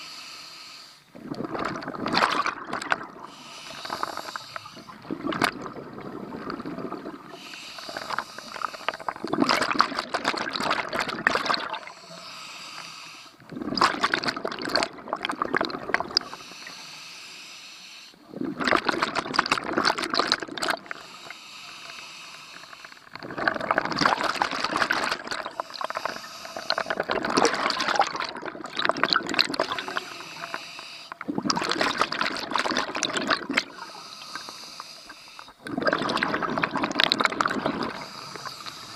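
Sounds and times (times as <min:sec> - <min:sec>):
diver inhaling through regulator: 0:00.0 - 0:01.1, 0:02.4 - 0:05.0, 0:07.1 - 0:09.2, 0:11.8 - 0:13.4, 0:16.2 - 0:18.2, 0:20.8 - 0:23.2, 0:24.4 - 0:27.9, 0:29.6 - 0:31.2, 0:33.6 - 0:35.6, 0:37.6 - 0:38.9
exhaust bubbles underwater: 0:01.1 - 0:12.0, 0:13.4 - 0:16.4, 0:18.2 - 0:21.0, 0:23.0 - 0:30.5, 0:31.1 - 0:34.4, 0:35.6 - 0:38.9.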